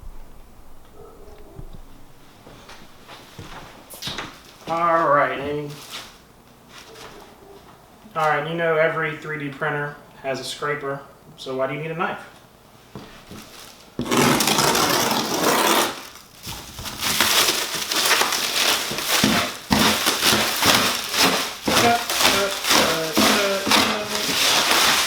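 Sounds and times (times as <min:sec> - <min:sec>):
cardboard box being cut and torn: 0:14.0 - 0:25.0.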